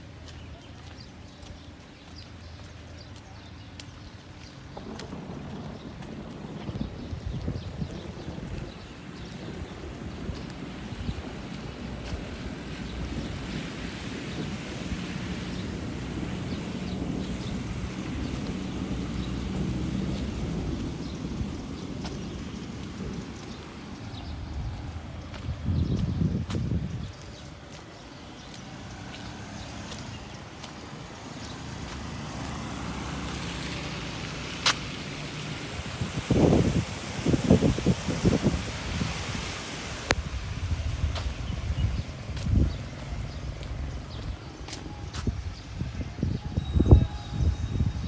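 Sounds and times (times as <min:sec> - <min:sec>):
rain in a street: 0:00.0 - 0:48.0
vehicle rumbling: 0:04.2 - 0:48.0.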